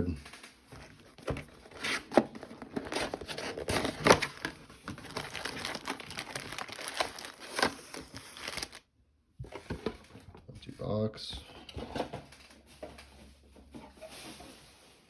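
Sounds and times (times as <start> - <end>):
plastic wrapping crinkling: 0.8 - 8.9
plastic ripping: 1.5 - 8.8.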